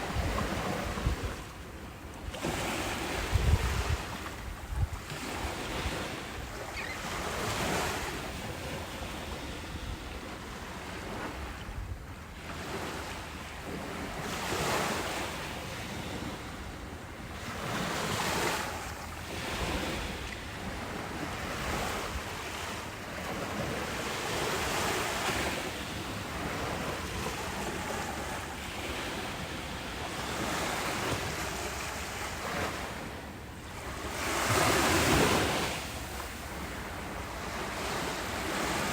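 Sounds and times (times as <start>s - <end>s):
wind buffeting microphone: 0.0s - 1.7s, 2.3s - 12.2s
ocean waves breaking on beach: 0.0s - 38.9s.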